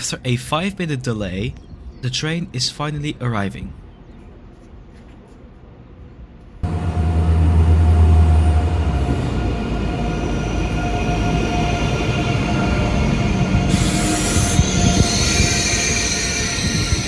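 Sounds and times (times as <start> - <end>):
electric train arriving: 6.6 - 17.0
high whining tones: 6.6 - 17.0.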